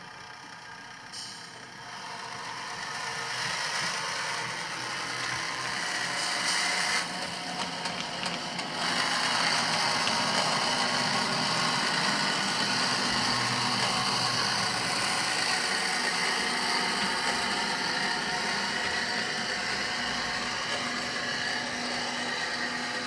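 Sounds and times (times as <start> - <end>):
model railcar diesel engine sound: 0.0 - 23.0.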